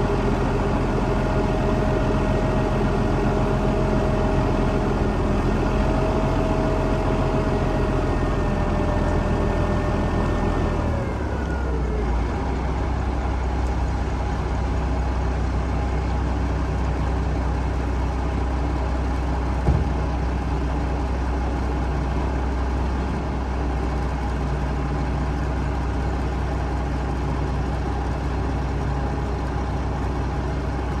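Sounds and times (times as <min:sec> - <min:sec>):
truck engine idling: 0:00.0 - 0:31.0
short knock: 0:19.6 - 0:20.1.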